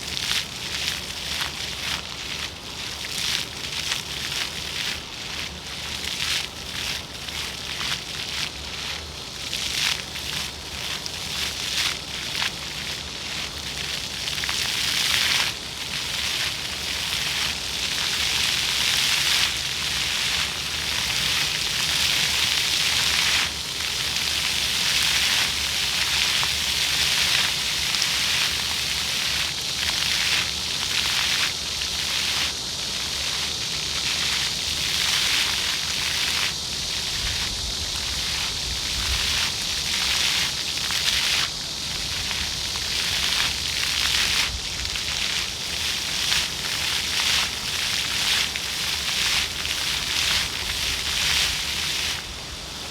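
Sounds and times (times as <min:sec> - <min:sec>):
fountain jets splashing on paving: 0:00.0 - 0:52.9.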